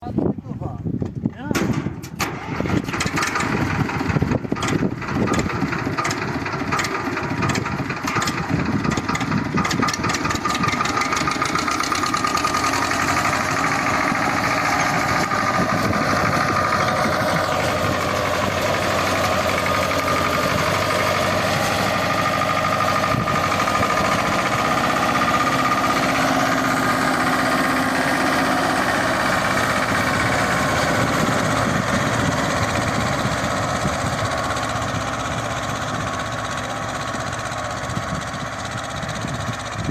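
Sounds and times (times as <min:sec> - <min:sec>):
tractor diesel engine running: 0:00.9 - 0:39.9
sharp engine knocks: 0:01.5 - 0:28.5.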